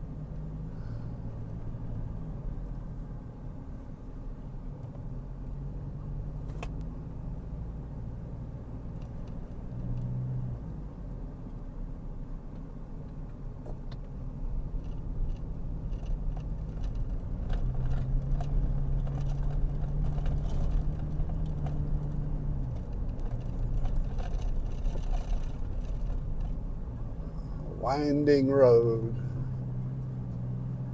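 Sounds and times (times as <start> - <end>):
car engine hum and road noise: 0.0 - 30.9
light clicks and rattles: 12.5 - 26.7.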